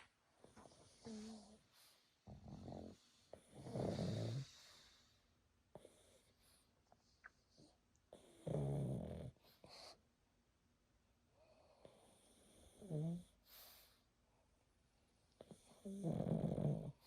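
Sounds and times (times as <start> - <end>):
dog snoring: 0.6 - 5.1, 5.7 - 6.6, 7.6 - 10.0, 11.5 - 14.0, 15.4 - 17.0.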